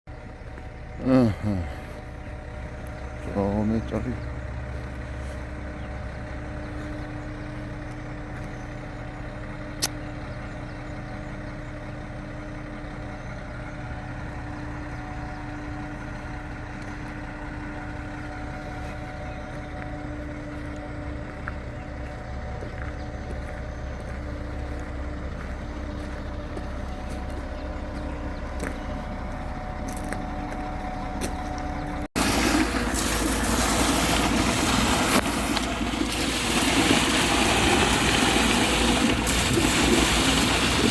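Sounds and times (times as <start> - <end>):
vehicle engine running: 0.1 - 40.9
sharp click: 9.8 - 10.0
loud rough noise: 32.2 - 40.9.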